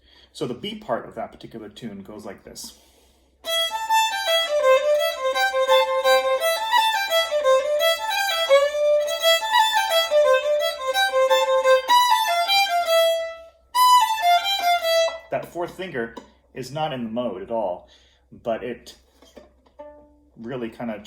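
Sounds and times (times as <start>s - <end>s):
solo fiddle melody: 3.4s - 15.5s, 19.8s - 20.3s.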